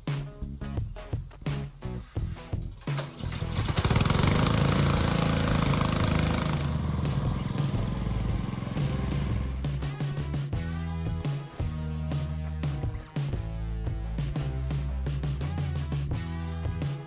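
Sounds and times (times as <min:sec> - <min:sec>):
pressure washer engine running: 0:03.2 - 0:09.7.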